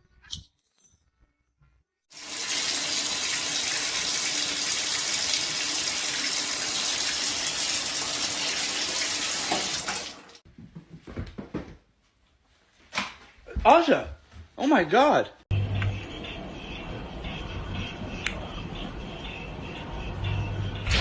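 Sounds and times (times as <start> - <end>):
water running from a tap: 2.1 - 10.4.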